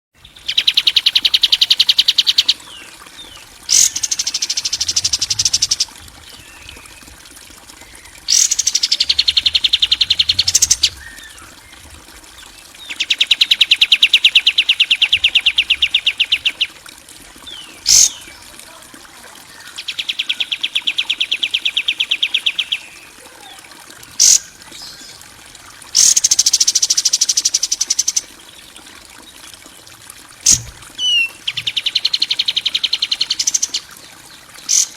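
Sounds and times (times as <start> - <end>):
songbird singing rough trills: 0.2 - 7.2, 7.8 - 16.8, 17.4 - 18.8, 19.4 - 25.2, 30.4 - 34.9.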